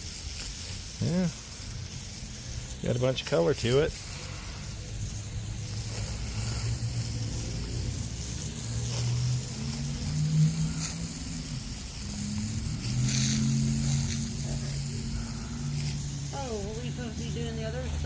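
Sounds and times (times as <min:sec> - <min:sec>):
sawmill engine humming: 0:02.6 - 0:18.0.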